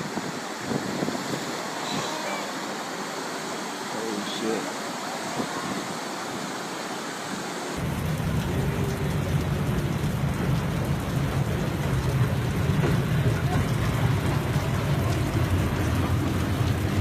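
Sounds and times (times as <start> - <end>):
steady rain: 0.0 - 17.0
deep rushing rumble: 7.8 - 17.0.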